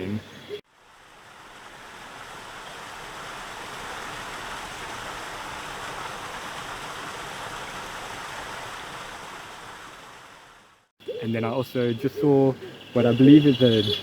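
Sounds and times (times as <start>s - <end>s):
running water rushing: 0.0s - 10.9s.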